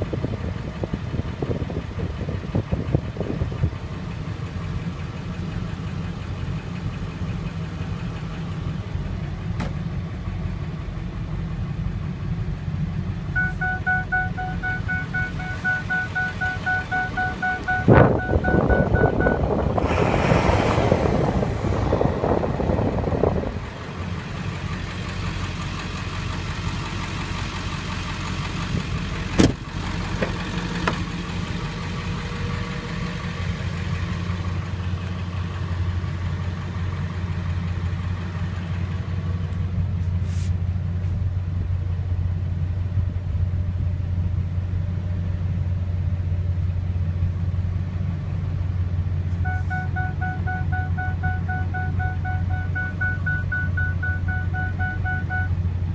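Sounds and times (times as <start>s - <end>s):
diesel engine idling: 0.0s - 55.9s.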